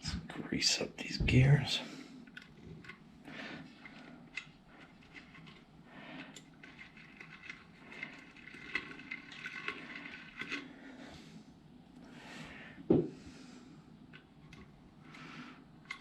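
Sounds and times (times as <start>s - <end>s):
faint wet squishing of grease: 2.2s - 11.0s.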